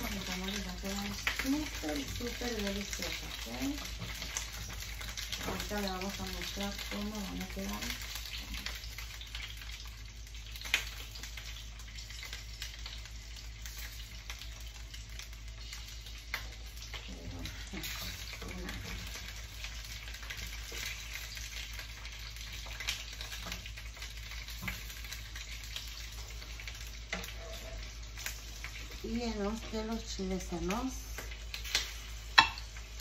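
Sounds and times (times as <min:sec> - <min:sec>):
chiles sizzling in hot oil: 0:00.0 - 0:33.0
spatula scraping a pan: 0:27.1 - 0:28.4.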